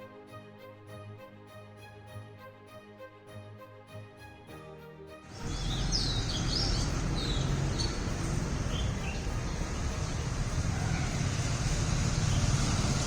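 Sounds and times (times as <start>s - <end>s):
soft instrumental music: 0.0s - 13.0s
birds chirping: 5.3s - 13.0s
low background rumble: 5.4s - 13.0s.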